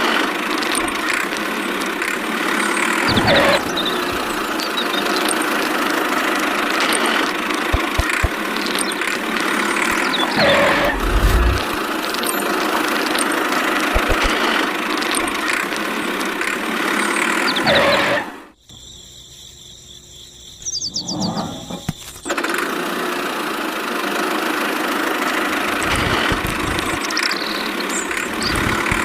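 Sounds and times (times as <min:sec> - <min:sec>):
engine running steadily: 0:00.0 - 0:17.3, 0:22.5 - 0:29.0
quick falling swoops: 0:10.4 - 0:11.9
short low thumps: 0:10.8 - 0:11.8.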